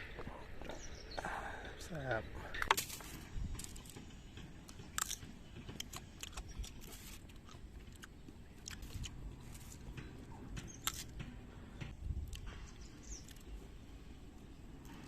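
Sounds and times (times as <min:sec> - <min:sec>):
person chewing crisp fruit: 0:02.6 - 0:11.4, 0:12.2 - 0:15.0.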